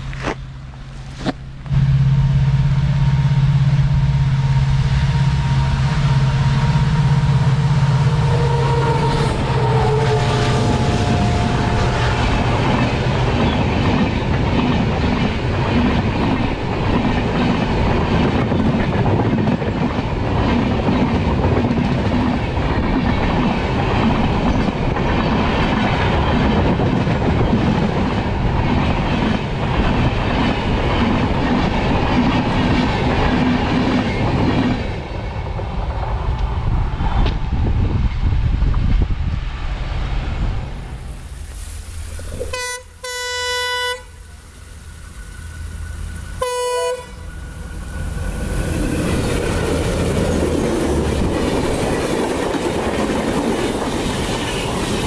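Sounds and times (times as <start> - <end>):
diesel locomotive engine passing: 0.0 - 55.0
wheels clacking over rail joints: 10.7 - 36.6, 47.2 - 55.0.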